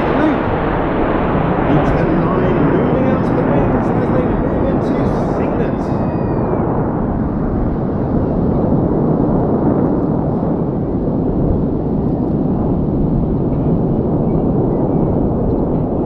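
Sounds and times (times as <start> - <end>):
jet engines rushing overhead: 0.0 - 16.0.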